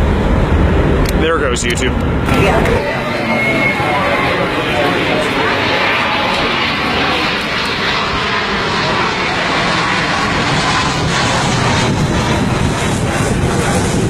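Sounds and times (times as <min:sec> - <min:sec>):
airplane engines roaring: 0:00.0 - 0:14.0.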